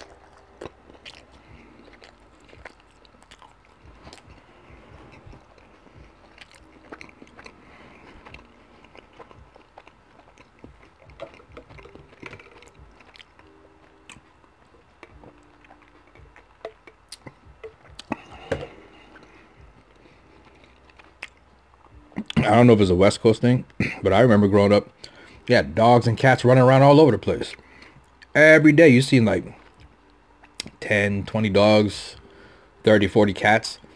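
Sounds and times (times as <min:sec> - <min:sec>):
chewing with wet mouth clicks: 0:00.0 - 0:22.5, 0:29.6 - 0:30.8.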